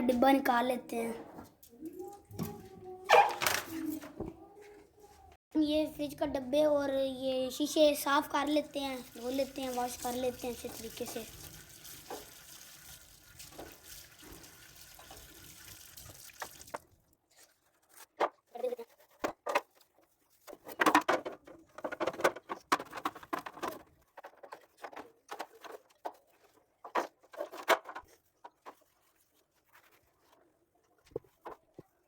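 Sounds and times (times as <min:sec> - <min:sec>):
tap water running into sink: 0:08.5 - 0:17.0
water splashing: 0:08.6 - 0:17.1.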